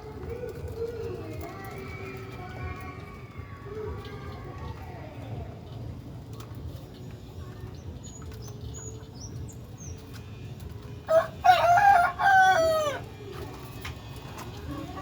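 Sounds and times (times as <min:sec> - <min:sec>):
small birds chirping: 0:06.3 - 0:10.8
rooster crowing: 0:11.1 - 0:13.0.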